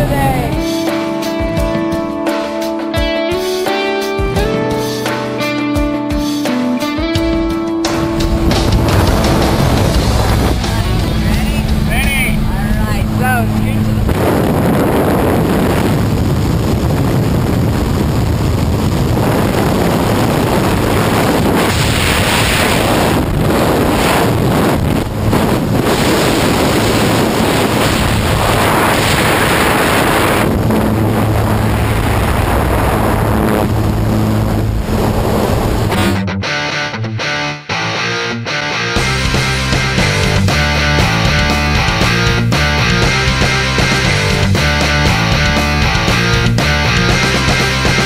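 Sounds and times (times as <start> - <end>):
airplane engine drone: 7.8 - 36.2
wind rushing over microphone: 7.9 - 36.2.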